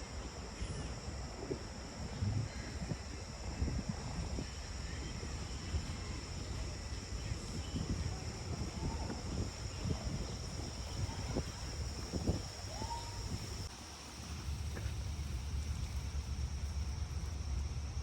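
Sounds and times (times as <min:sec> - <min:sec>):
high insect drone: 0:00.0 - 0:18.0
low rumble: 0:01.2 - 0:12.5.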